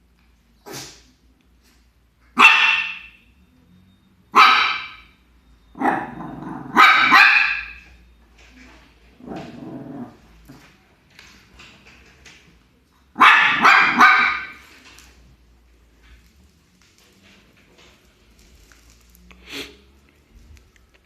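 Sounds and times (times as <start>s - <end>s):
young dog barking: 2.4s - 3.1s, 4.4s - 5.0s, 5.8s - 7.8s, 13.2s - 14.6s.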